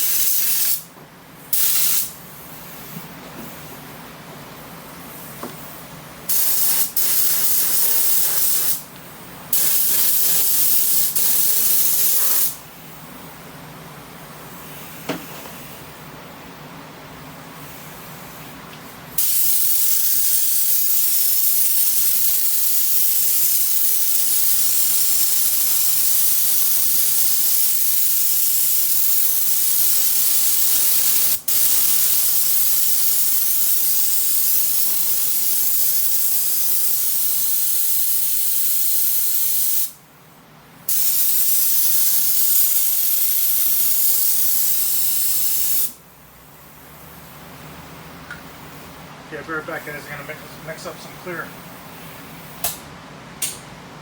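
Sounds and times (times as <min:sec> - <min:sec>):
paint spray gun hissing: 0:00.0 - 0:00.9, 0:01.5 - 0:03.0, 0:06.3 - 0:08.9, 0:09.5 - 0:12.6, 0:19.2 - 0:40.0, 0:40.9 - 0:46.0.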